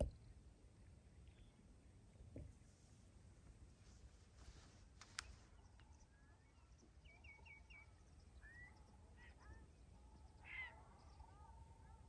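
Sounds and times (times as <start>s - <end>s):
bird chirps and calls: 5.1s - 12.0s.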